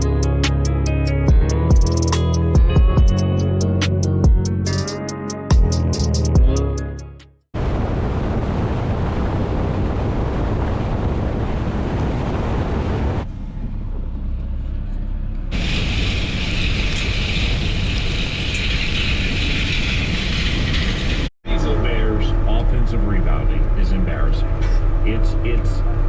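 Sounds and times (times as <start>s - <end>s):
wind noise on microphone: 7.6s - 13.3s, 15.5s - 21.3s
tractor engine running: 13.2s - 26.0s.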